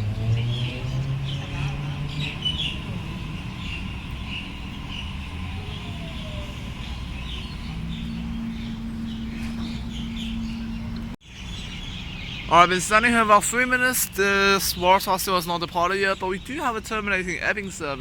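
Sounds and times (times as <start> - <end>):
low drone: 0.0 - 11.2
low hum and rumble: 0.0 - 11.2
birds chirping: 0.0 - 18.0.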